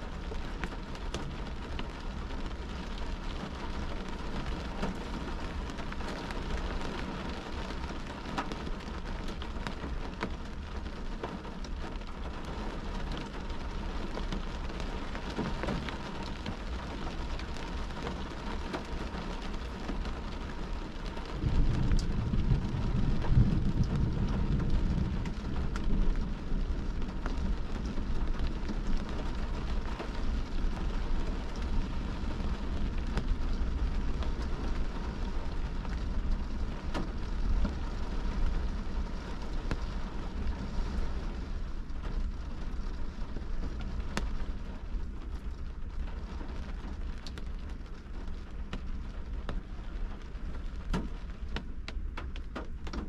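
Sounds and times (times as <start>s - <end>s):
rain on car windshield and roof: 0.0s - 53.0s
low rumble: 20.9s - 49.3s.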